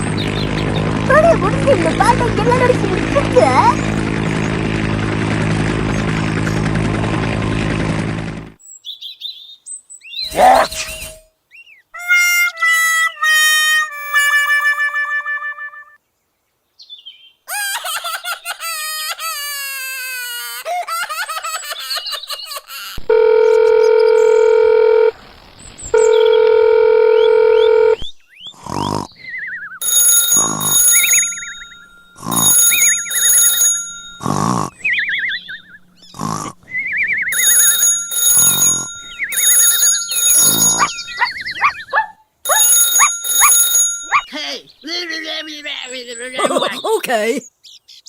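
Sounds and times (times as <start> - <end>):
loud steady beeping tone: 29.8 - 35.8, 37.3 - 41.3
high ringing tones: 29.8 - 36.1, 36.9 - 41.8, 42.5 - 44.4.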